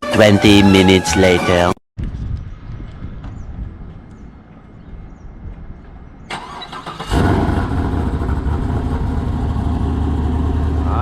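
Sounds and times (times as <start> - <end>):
engine starter cranking: 6.3 - 7.8
car engine idling: 6.4 - 11.0.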